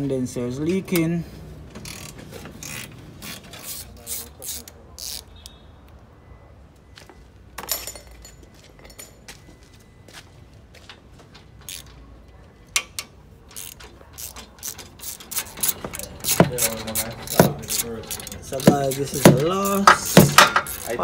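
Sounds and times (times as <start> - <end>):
hand tools clicking on metal: 12.7 - 21.0.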